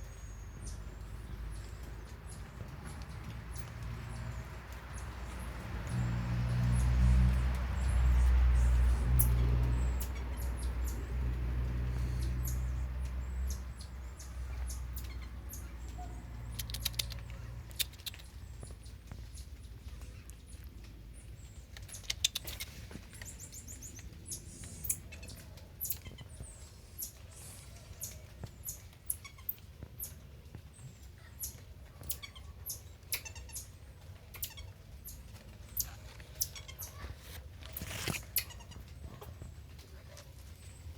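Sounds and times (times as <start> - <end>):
small animal squeaks: 31.4 - 38.8.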